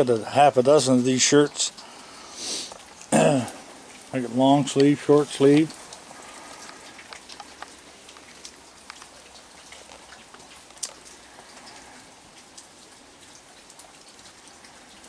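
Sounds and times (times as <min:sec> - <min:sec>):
heavy rain falling: 0:00.0 - 0:15.0
raindrops ticking: 0:00.0 - 0:15.0.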